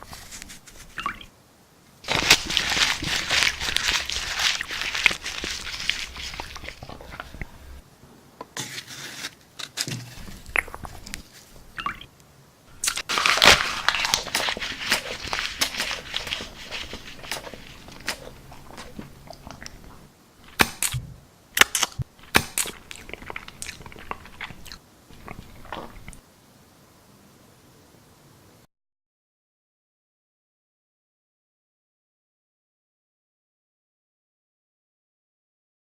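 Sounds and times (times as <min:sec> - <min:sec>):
chips being crunched: 0:02.0 - 0:07.7, 0:12.7 - 0:19.8, 0:21.6 - 0:26.1.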